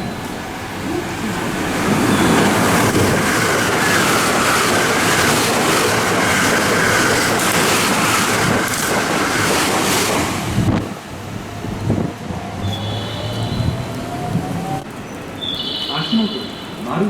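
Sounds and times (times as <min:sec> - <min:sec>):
electric train running: 0:00.0 - 0:15.3.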